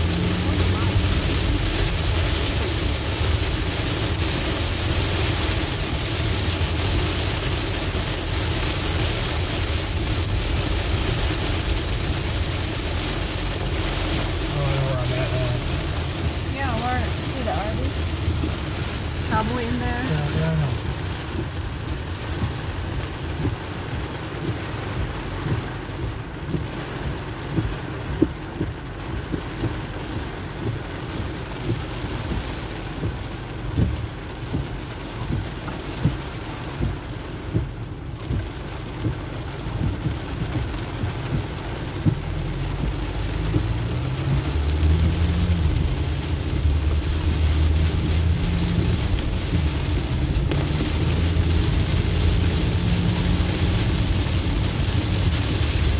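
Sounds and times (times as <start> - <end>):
car engine and wet tyres: 0.0 - 55.9
heavy rain on car roof: 0.0 - 55.9.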